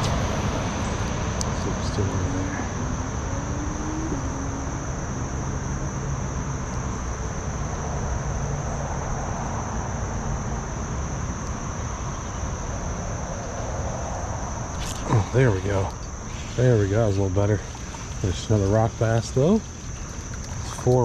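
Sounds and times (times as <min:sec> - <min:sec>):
faint rising hum: 0:00.0 - 0:21.0
insects droning: 0:00.0 - 0:21.0
creek water rushing: 0:14.6 - 0:21.0.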